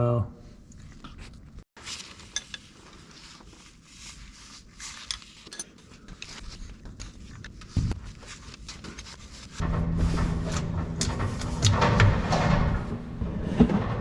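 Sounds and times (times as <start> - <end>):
mechanical hum with rattling: 9.5 - 14.0.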